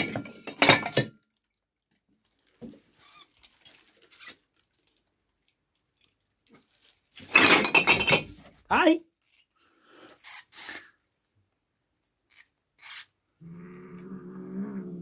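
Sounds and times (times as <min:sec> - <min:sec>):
clatter of objects knocked about: 0:00.0 - 0:01.2, 0:07.2 - 0:08.5
mouse squeaks: 0:12.3 - 0:13.1.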